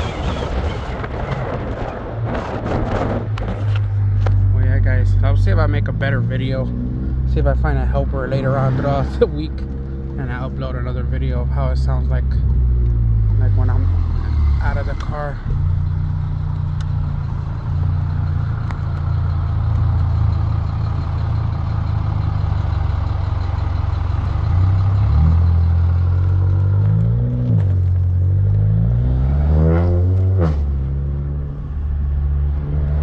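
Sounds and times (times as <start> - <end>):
car engine revving inside car: 24.1 - 33.0.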